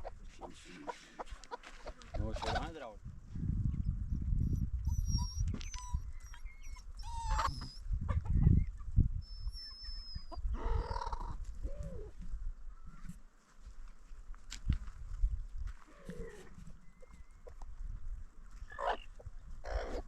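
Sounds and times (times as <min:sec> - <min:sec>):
small birds chirping: 0:03.7 - 0:12.1, 0:16.0 - 0:17.8.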